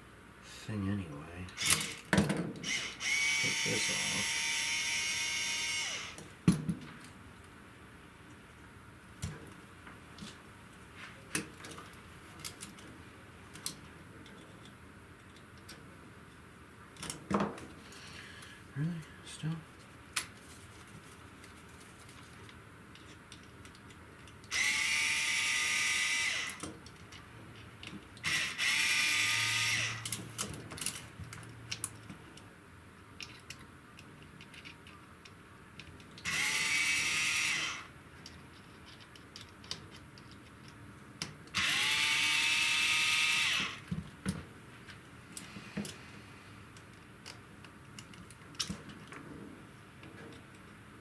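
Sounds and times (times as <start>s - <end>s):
small parts and tools clicking: 1.5s - 6.3s, 22.1s - 46.1s, 46.7s - 49.2s
electric power driver whirring: 1.6s - 6.3s, 24.5s - 26.6s, 28.2s - 30.2s, 36.2s - 37.9s, 41.6s - 43.9s.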